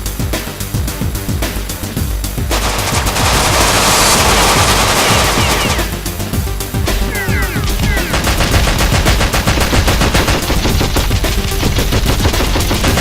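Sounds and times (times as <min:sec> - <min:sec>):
background music: 0:00.0 - 0:13.0
rapid automatic gunfire: 0:02.5 - 0:06.1, 0:07.1 - 0:13.0
falling whistles: 0:02.6 - 0:06.0.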